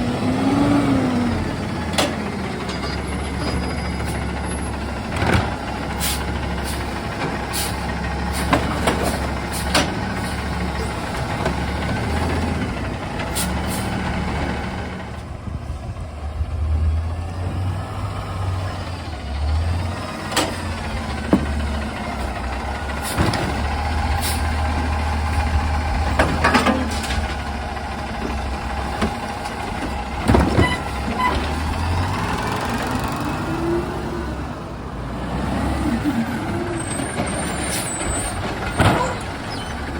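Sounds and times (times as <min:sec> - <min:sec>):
diesel engine droning: 0:00.0 - 0:39.9
sharp knocks and bangs: 0:20.3 - 0:21.8.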